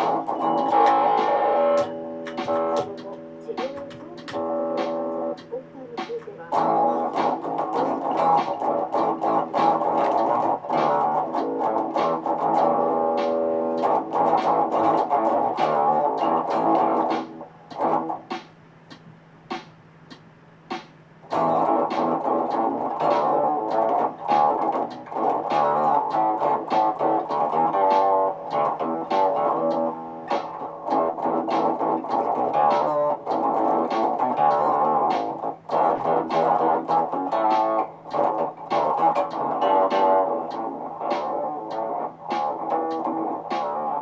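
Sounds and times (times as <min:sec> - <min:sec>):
steady low notes: 0:00.0 - 0:19.6
looped picked guitar: 0:00.0 - 0:44.0.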